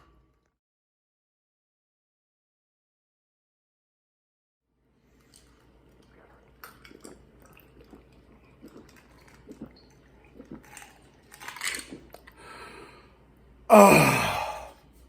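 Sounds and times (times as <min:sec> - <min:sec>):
person gulping water: 0:06.0 - 0:12.4, 0:13.7 - 0:14.8
man sighing ahh: 0:13.7 - 0:14.8.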